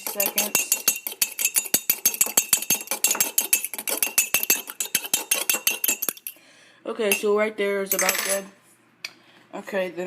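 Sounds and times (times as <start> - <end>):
fork whisking egg in mug: 0.0 - 6.4.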